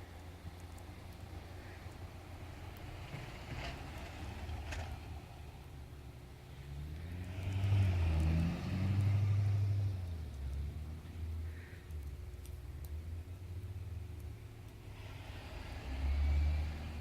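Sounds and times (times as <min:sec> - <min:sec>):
car engine revving: 0:06.7 - 0:11.0.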